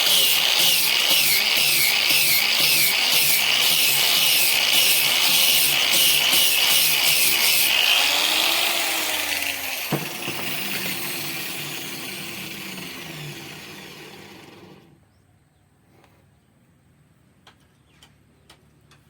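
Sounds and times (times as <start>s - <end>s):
electric drill running: 0.0s - 14.9s.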